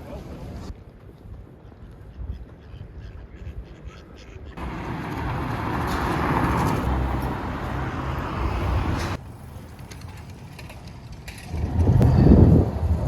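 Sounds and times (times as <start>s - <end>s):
city street noise: 0.0s - 13.0s
vehicle passing: 4.6s - 9.7s.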